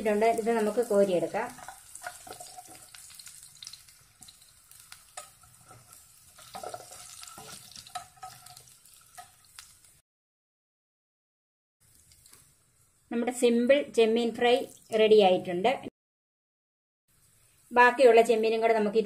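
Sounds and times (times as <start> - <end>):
utensils scraping and clinking on pan: 0.0 - 9.7
prawns sizzling in oil: 0.0 - 10.0, 11.8 - 15.3, 17.1 - 19.0.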